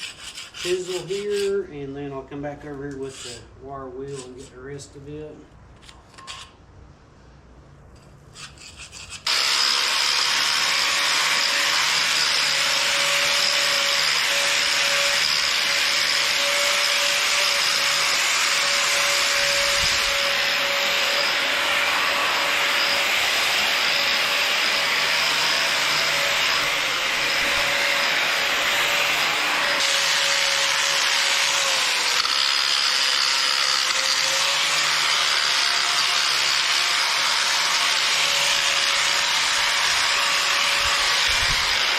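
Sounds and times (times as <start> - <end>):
wire wheel scrubbing metal: 0.0 - 1.6.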